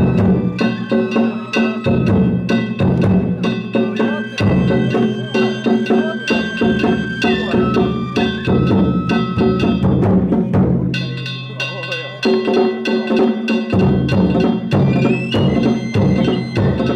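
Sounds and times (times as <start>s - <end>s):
small drums: 0.0s - 16.9s.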